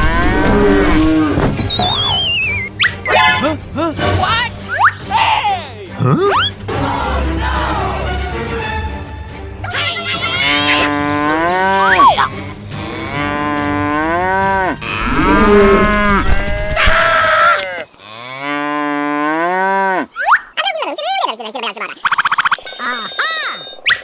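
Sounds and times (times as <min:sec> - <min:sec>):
cattle mooing: 0:10.4 - 0:11.9, 0:12.8 - 0:16.8.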